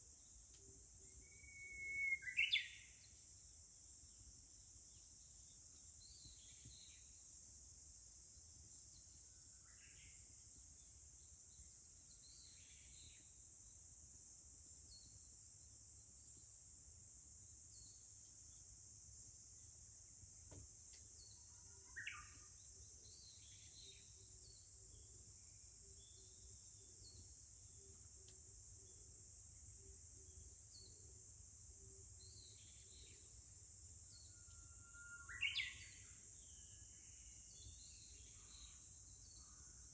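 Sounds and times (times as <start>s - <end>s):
cicadas droning: 0.0s - 39.9s
bird chirps: 1.1s - 3.0s, 34.1s - 39.6s.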